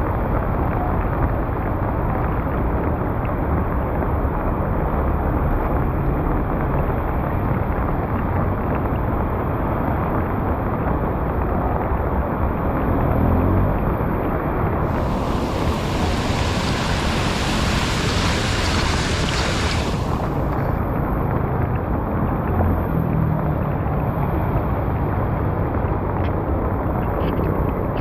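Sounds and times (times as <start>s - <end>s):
floodwater rushing into drain: 14.8s - 21.0s.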